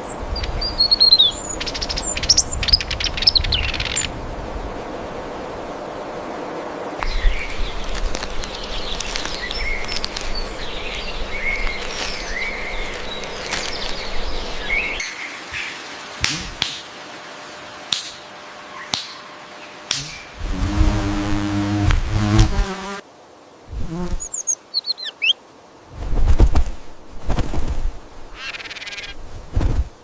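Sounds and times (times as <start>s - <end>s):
birds chirping: 0.0s - 4.2s, 7.0s - 23.0s, 23.9s - 25.4s, 28.3s - 29.2s.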